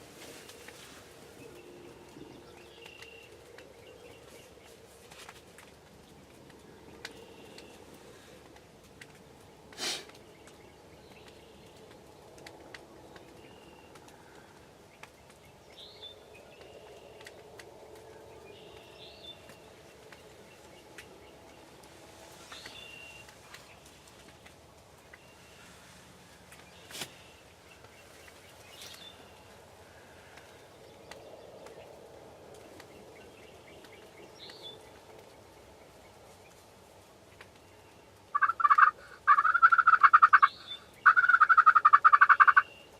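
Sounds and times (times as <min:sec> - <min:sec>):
distant birds chirping: 0:00.0 - 0:42.9
faint outdoor ambience: 0:00.0 - 0:42.9
faint clicks: 0:02.0 - 0:25.4.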